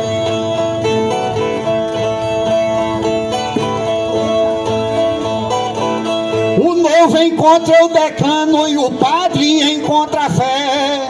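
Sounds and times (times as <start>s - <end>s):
plucked string instrument: 0.0s - 11.0s.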